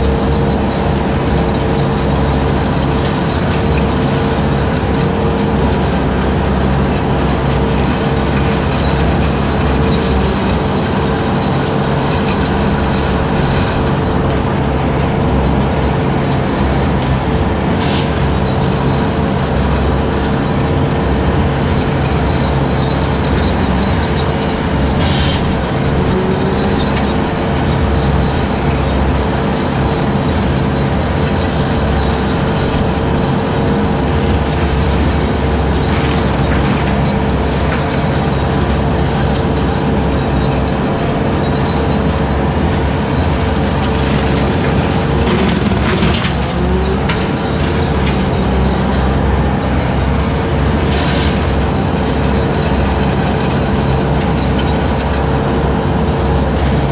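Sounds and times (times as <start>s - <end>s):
engine drone: 0.0s - 56.9s
brush cutter whine: 21.8s - 56.9s.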